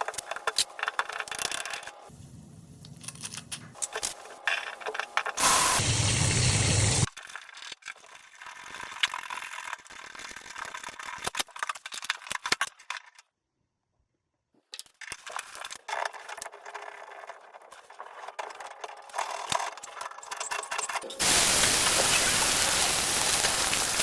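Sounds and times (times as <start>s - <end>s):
metal tools clicking and rattling: 18.5s - 21.2s.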